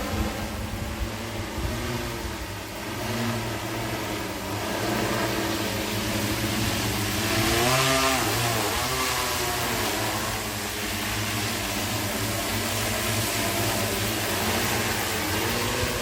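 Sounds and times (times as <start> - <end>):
drone rotors whining hum: 0.0 - 16.0
rushing hiss: 3.5 - 16.0.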